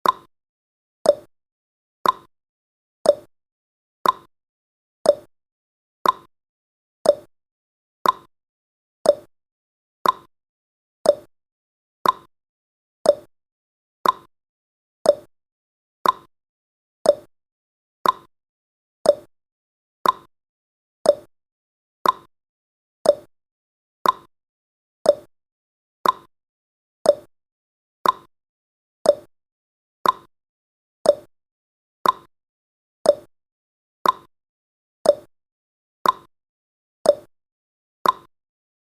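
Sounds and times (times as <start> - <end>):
timer ticking clicks: 0.0 - 0.3, 1.0 - 1.3, 2.0 - 2.3, 3.0 - 3.3, 4.0 - 4.3, 5.0 - 5.3, 6.0 - 6.3, 7.0 - 7.3, 8.0 - 8.3, 9.0 - 9.3, 10.0 - 10.3, 11.0 - 11.3, 12.0 - 12.3, 13.0 - 13.3, 14.0 - 14.3, 15.0 - 15.3, 16.0 - 16.3, 17.0 - 17.3, 18.0 - 18.3, 19.0 - 19.3, 20.0 - 20.3, 21.0 - 21.3, 22.0 - 22.3, 23.0 - 23.3, 24.0 - 24.3, 25.0 - 25.3, 26.0 - 26.3, 27.0 - 27.3, 28.0 - 28.3, 29.0 - 29.3, 30.0 - 30.3, 31.0 - 31.3, 32.0 - 32.3, 33.0 - 33.3, 34.0 - 34.3, 35.0 - 35.3, 36.0 - 36.3, 37.0 - 37.3, 38.0 - 38.3.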